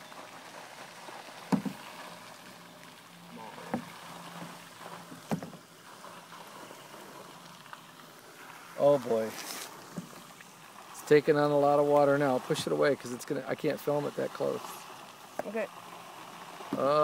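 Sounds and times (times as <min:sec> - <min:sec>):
water lapping and sloshing: 0:00.0 - 0:17.0
sharp knocks: 0:01.5 - 0:01.8.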